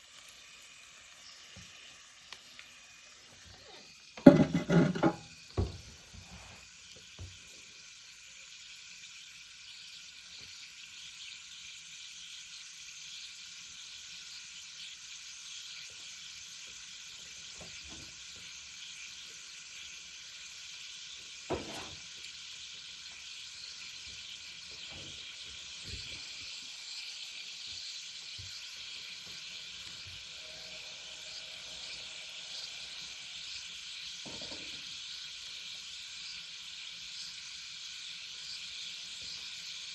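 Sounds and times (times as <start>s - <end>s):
meat sizzling on a grill: 0.0s - 39.9s.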